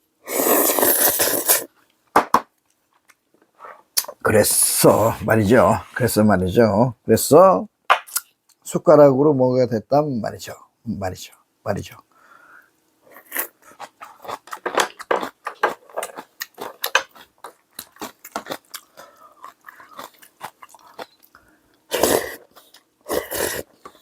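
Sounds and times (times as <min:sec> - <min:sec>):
loud noisy eating bursts: 0:00.2 - 0:01.7, 0:21.9 - 0:23.8
man chewing and smacking: 0:13.6 - 0:21.4.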